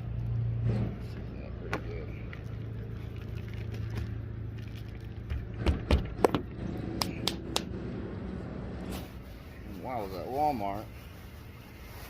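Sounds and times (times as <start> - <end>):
sharp taps and knocks: 5.3 - 7.7.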